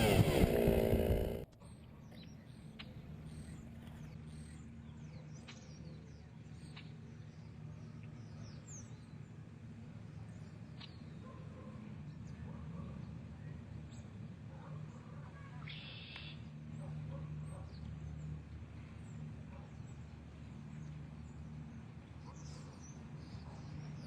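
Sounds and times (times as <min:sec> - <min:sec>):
low steady hum: 0:00.0 - 0:24.0
faint bird chirps: 0:15.3 - 0:17.9.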